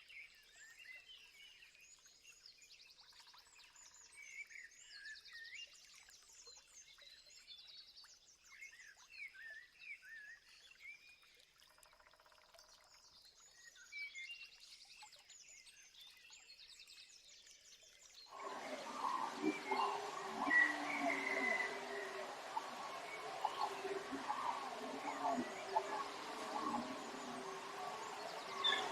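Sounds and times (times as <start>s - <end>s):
background hiss: 18.3s - 28.9s
wild birds calling and singing: 18.3s - 28.9s.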